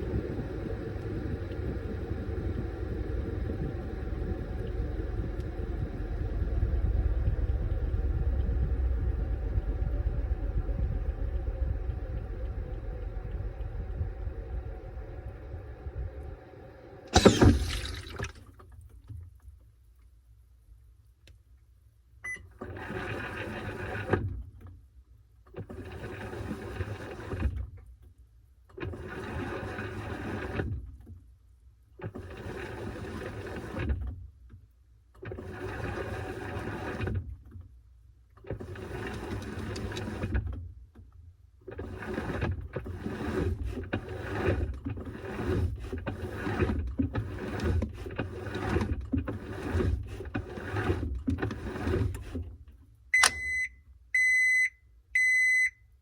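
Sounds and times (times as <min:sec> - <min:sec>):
washing machine churning: 0:00.0 - 0:18.4, 0:41.7 - 0:52.6.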